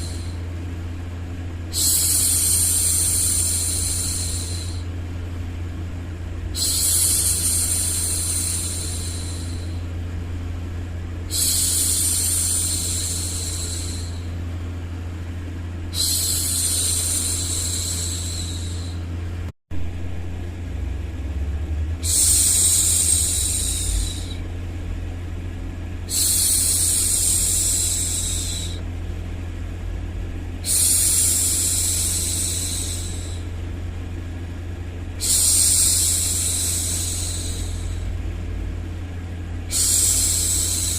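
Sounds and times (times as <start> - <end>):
white noise hum: 0.0 - 40.9
woman shushing: 15.9 - 19.0, 22.0 - 24.4.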